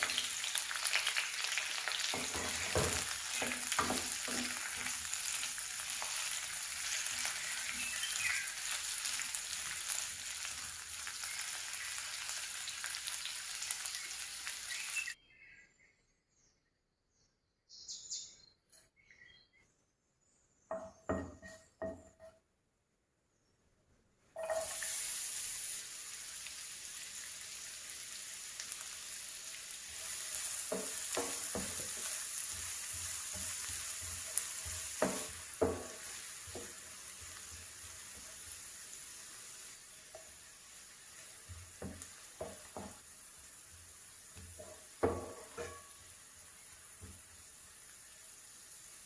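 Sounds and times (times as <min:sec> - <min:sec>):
food sizzling in hot oil: 0:00.0 - 0:15.2, 0:24.4 - 0:49.0
spoon scraping a pan: 0:01.8 - 0:08.2, 0:24.4 - 0:25.1, 0:44.6 - 0:46.2.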